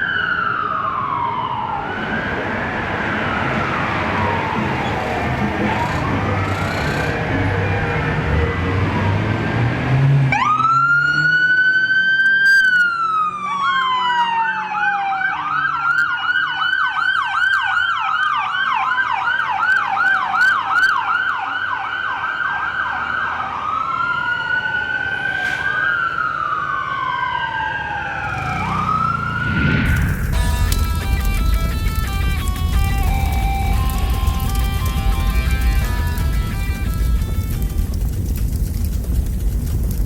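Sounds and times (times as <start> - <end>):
siren yelping: 0.0 - 9.6, 10.4 - 31.6
siren wailing: 0.0 - 36.6.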